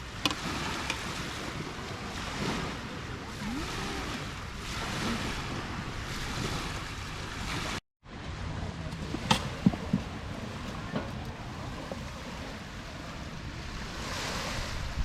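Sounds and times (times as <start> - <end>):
wind buffeting microphone: 0.0 - 15.0
surf washing onto beach: 8.5 - 15.0.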